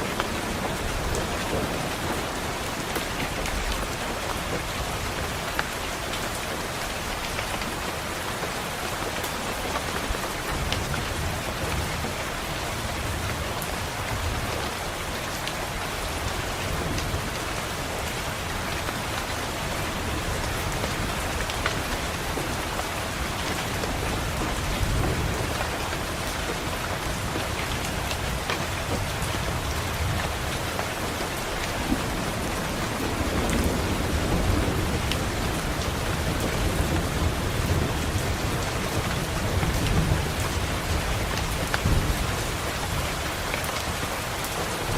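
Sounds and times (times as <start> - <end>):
rain falling on a window: 0.0 - 44.9
thunder rumbling: 19.6 - 43.1.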